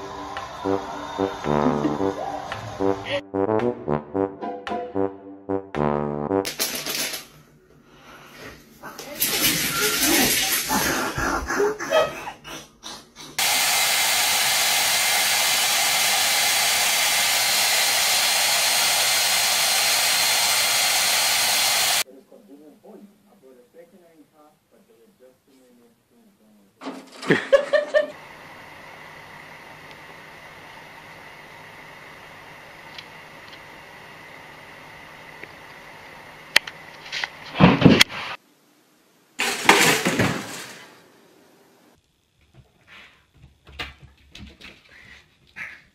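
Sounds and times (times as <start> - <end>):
hair dryer running: 0.0 - 3.0, 13.4 - 22.0, 28.1 - 36.2
toaster popping up: 26.8 - 27.6, 39.4 - 41.0
loud clatter: 39.4 - 41.0.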